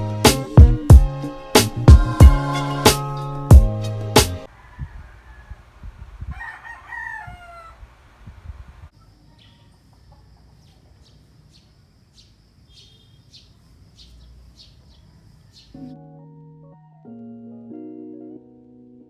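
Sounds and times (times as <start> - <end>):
rooster crowing: 4.5 - 11.1, 14.0 - 15.9
small birds chirping: 4.5 - 16.0.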